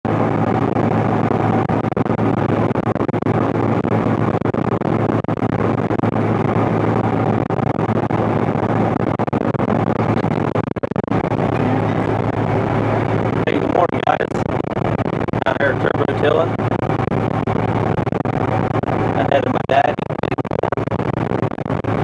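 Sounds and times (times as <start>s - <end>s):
tractor diesel engine droning: 11.1s - 14.4s, 15.4s - 16.7s.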